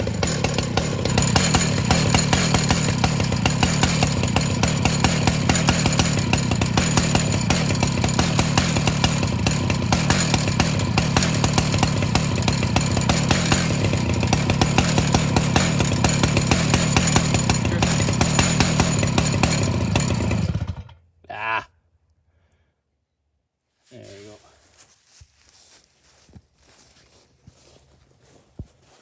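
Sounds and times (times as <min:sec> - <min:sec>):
chainsaw ripping through log: 0:00.0 - 0:21.0.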